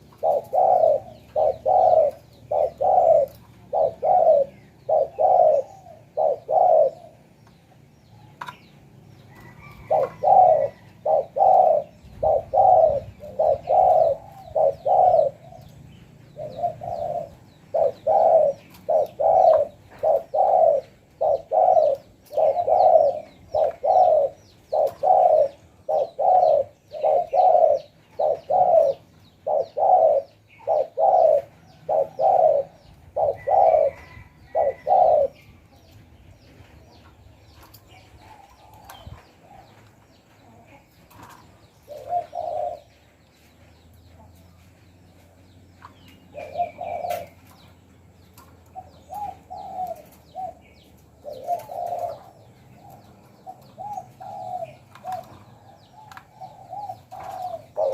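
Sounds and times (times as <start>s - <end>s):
dove cooing: 0.0s - 7.6s, 9.3s - 43.2s, 46.1s - 47.8s, 48.4s - 57.9s.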